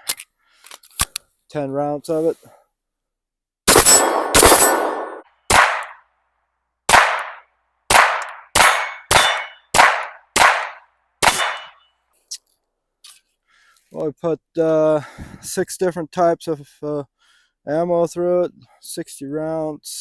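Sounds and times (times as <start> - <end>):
pistol shots with ringing echo: 3.7 - 6.0, 6.9 - 11.8.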